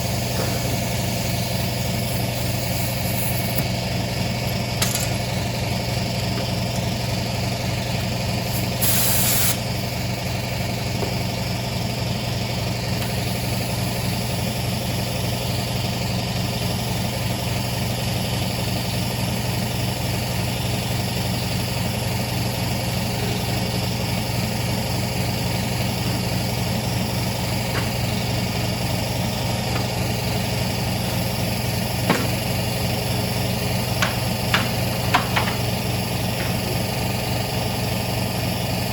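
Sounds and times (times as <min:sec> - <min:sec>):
lawnmower engine running: 0:00.0 - 0:38.9
brief high hiss: 0:08.8 - 0:09.6.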